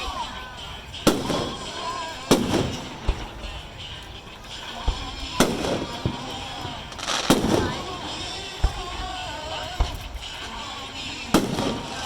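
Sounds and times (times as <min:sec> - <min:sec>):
fireworks shell bursts: 0:01.0 - 0:03.4, 0:05.4 - 0:07.7
dull low thuds: 0:04.8 - 0:10.4.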